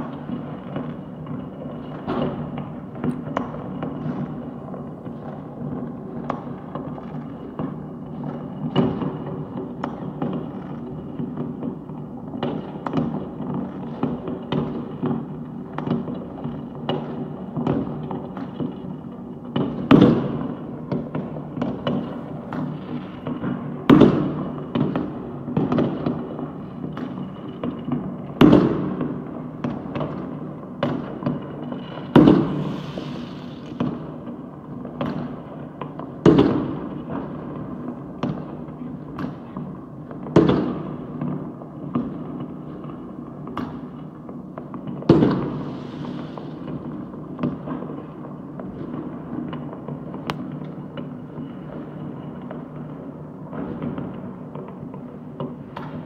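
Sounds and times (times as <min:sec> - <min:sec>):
fireworks popping and crackling: 0:00.0 - 0:56.0
loud firework bangs: 0:12.4 - 0:42.7, 0:43.4 - 0:51.2.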